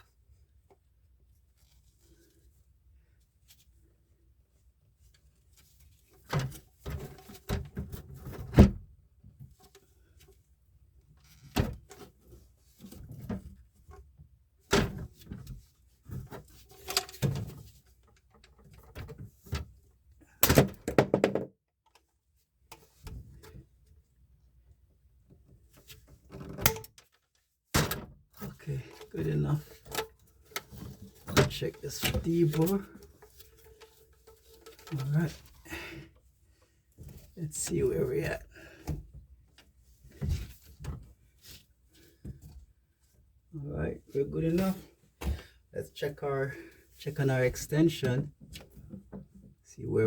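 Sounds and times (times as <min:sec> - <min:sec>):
knocks and thunks of pipe: 0:20.4 - 0:21.6, 0:27.7 - 0:28.4, 0:45.2 - 0:45.5.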